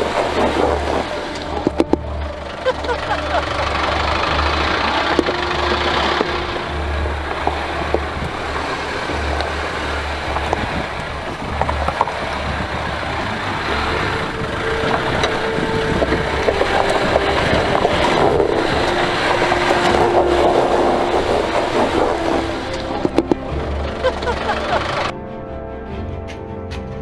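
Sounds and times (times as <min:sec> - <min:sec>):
off-road vehicle engine at low revs: 0:00.0 - 0:25.1.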